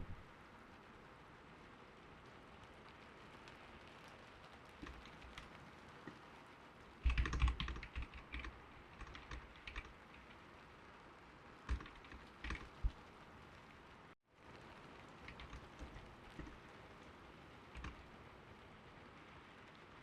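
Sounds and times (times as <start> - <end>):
gentle rain hiss: 0.0 - 20.0
typing on a computer keyboard: 7.0 - 10.4, 11.7 - 13.0, 15.2 - 16.6, 17.7 - 18.0.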